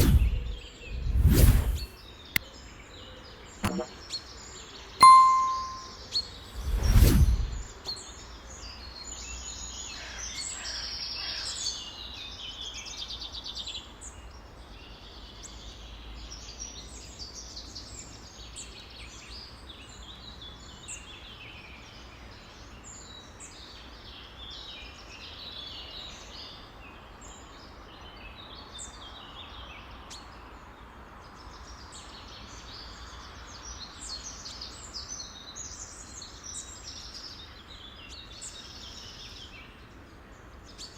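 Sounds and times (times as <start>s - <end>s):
loud whoosh: 0.0s - 1.9s, 6.6s - 7.7s.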